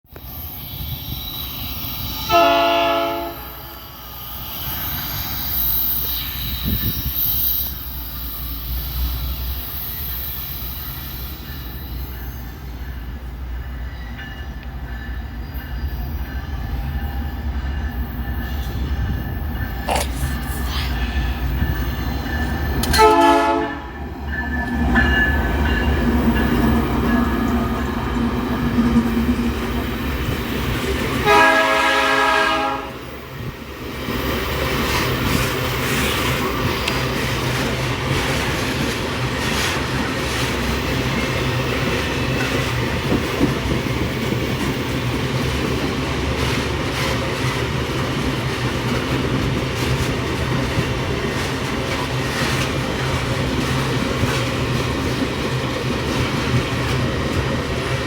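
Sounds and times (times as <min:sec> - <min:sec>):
train rumbling: 0:00.1 - 0:58.0
train horn blasts: 0:02.2 - 0:04.0, 0:22.8 - 0:24.0, 0:31.2 - 0:33.0.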